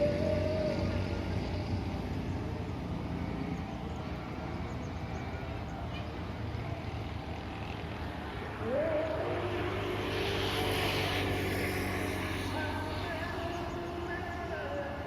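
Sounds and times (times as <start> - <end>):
motor vehicle engine passing: 0.0 - 15.0.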